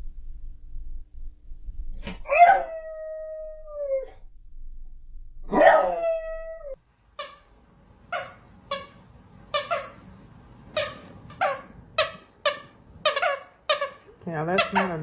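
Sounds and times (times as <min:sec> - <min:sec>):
dog howling: 0:05.5 - 0:06.8.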